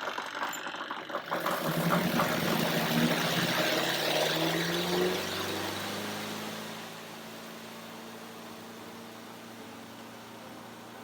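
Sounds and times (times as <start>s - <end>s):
washing machine motor whir: 0.0s - 5.5s.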